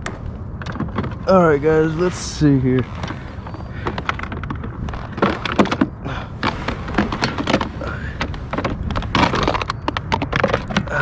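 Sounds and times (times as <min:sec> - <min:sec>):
gear knocking on plastic kayak: 0:02.8 - 0:11.0.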